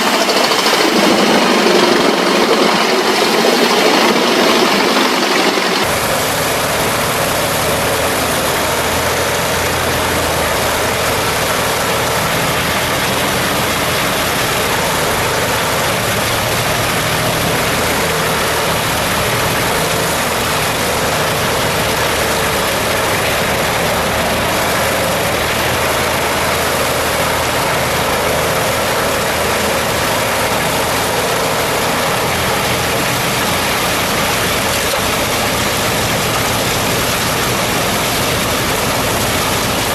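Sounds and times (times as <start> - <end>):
loud rushing noise: 0.0 - 5.9
heavy machine engine running: 0.0 - 39.9.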